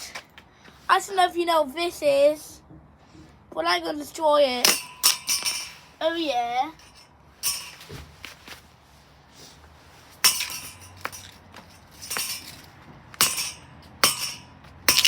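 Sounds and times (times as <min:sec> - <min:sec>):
sharp clinking cracking blows: 0:04.6 - 0:08.0, 0:10.2 - 0:15.0.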